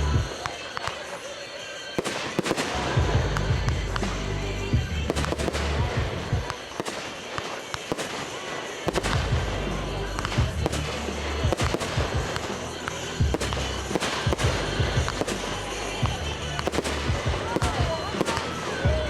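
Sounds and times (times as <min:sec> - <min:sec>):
fireworks bangs and crackles: 0:00.0 - 0:19.0
music playing: 0:00.0 - 0:19.0.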